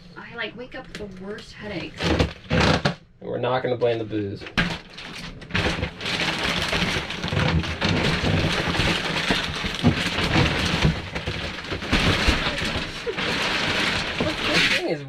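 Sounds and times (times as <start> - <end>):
thumps and knocks: 4.4 - 14.7.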